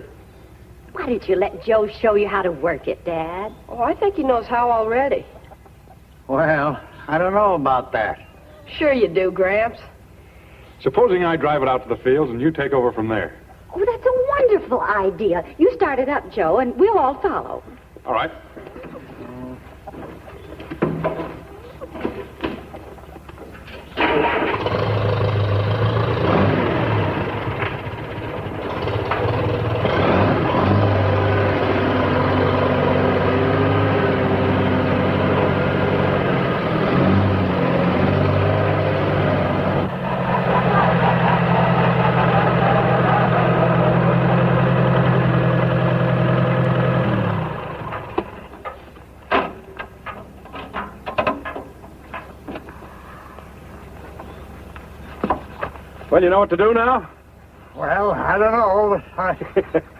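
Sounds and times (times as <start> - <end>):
tractor engine running: 11.0 - 59.9
sharp clicks and knocks: 48.0 - 52.8.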